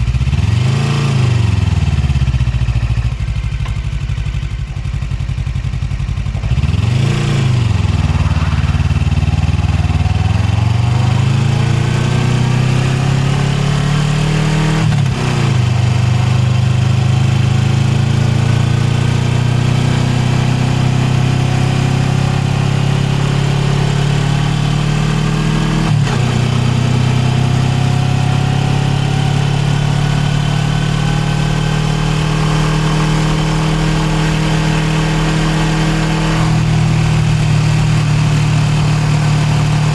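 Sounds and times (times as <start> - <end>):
motorcycle engine revving: 0.0 - 39.9
road noise: 5.6 - 17.8, 22.6 - 39.9.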